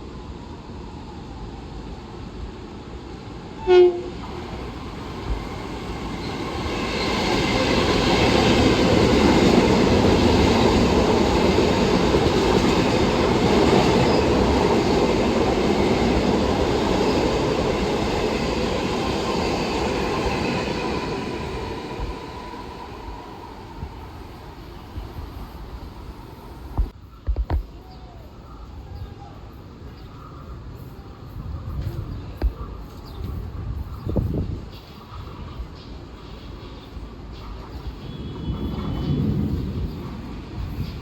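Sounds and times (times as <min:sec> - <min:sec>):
train horn toot: 0:03.6 - 0:04.2, 0:38.0 - 0:39.6
train wheels rumbling and clattering: 0:04.2 - 0:26.0, 0:29.8 - 0:41.0.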